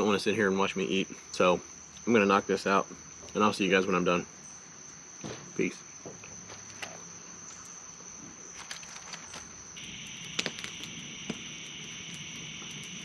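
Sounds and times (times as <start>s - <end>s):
crickets chirping: 0.0s - 13.0s
small clicks and crackles: 8.6s - 13.0s.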